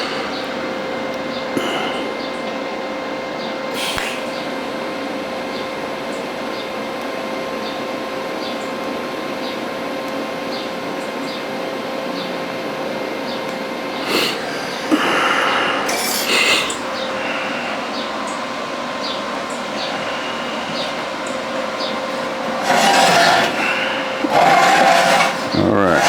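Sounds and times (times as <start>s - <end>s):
welding arc hiss: 3.7s - 5.1s
welder whine: 12.4s - 26.0s
clattering: 21.8s - 26.0s.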